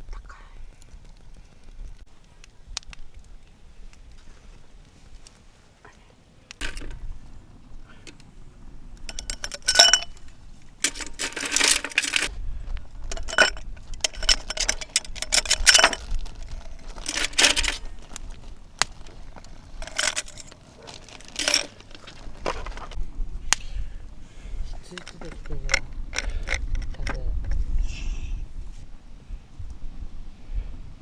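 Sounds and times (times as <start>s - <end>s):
tableware clinking and rattling: 6.6s - 7.0s, 9.1s - 12.3s, 13.0s - 18.2s, 19.0s - 22.9s, 25.0s - 27.2s.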